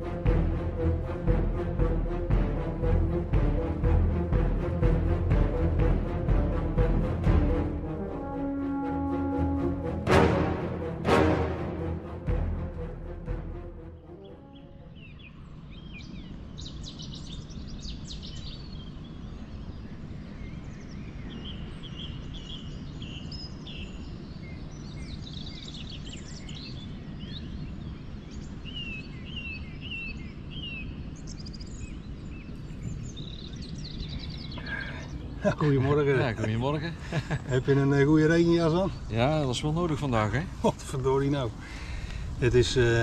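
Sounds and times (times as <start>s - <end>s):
low background rumble: 0.0s - 43.0s
songbirds singing and chirping: 11.7s - 43.0s.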